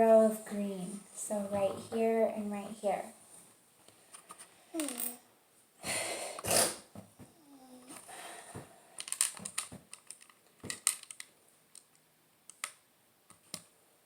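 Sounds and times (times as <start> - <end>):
plastic bricks clicking: 9.0 - 13.7.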